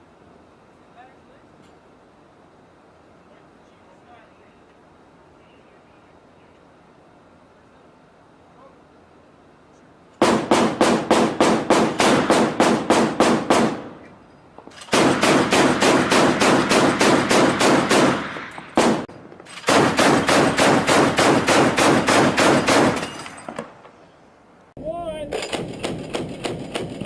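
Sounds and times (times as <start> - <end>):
machine gun firing bursts: 10.2 - 14.0, 14.8 - 23.2, 25.4 - 27.0.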